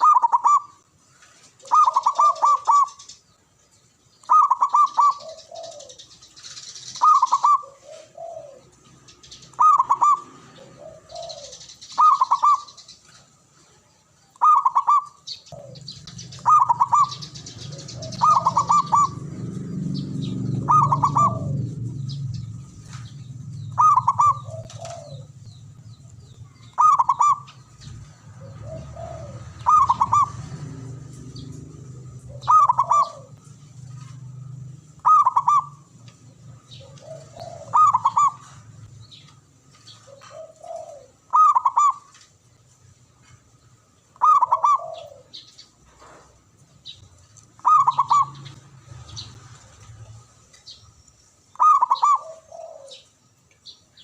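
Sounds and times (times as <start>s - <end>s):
dove cooing: 0.0s - 0.9s, 1.6s - 3.2s, 4.2s - 13.2s, 14.4s - 39.2s, 39.8s - 42.2s, 44.2s - 46.3s, 47.6s - 49.3s, 51.5s - 53.2s
birds chirping high: 0.0s - 54.0s
low rumble: 15.6s - 26.8s.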